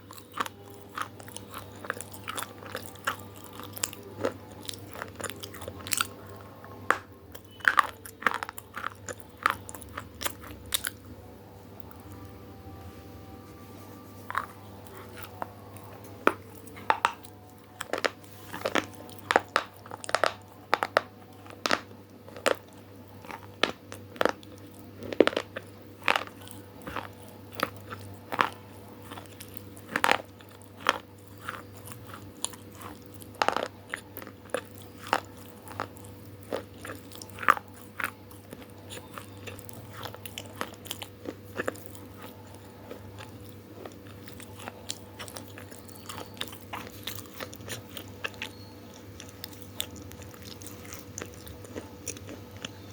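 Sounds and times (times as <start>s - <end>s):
chewing crunchy food: 0.0s - 12.4s, 13.5s - 52.9s.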